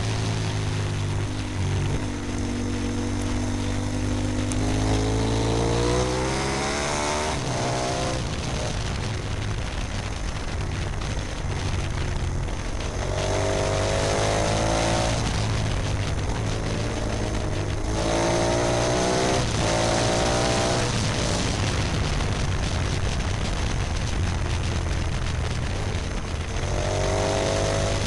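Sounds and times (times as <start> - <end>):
motorcycle engine accelerating: 0.0 - 28.0
wind rush on microphone: 0.0 - 28.0.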